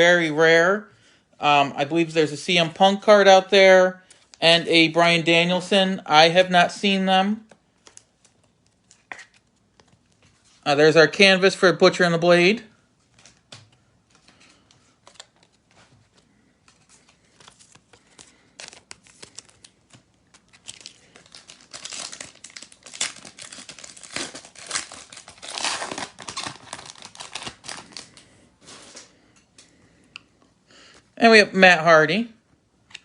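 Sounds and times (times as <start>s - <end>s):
cards being handled: 7.4s - 10.6s, 13.0s - 29.1s
foil wrapper tearing and crinkling: 17.2s - 28.2s.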